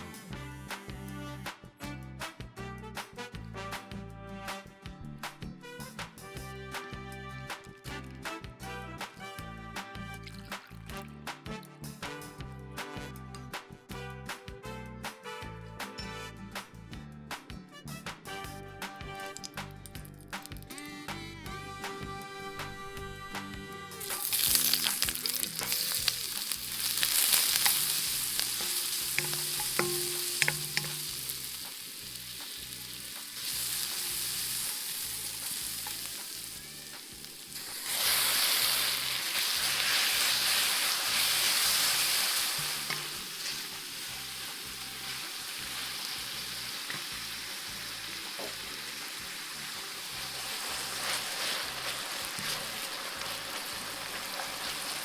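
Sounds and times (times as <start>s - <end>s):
stir-fry sizzling in a pan: 24.0s - 55.0s
utensil clicking against pan: 24.1s - 36.4s.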